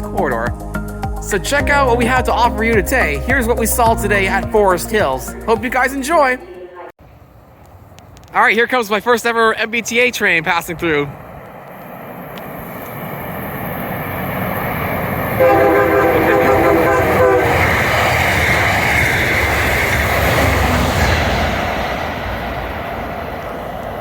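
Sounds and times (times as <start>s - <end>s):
train rumble and rail noise: 1.2s - 24.0s
train horn: 15.4s - 18.2s.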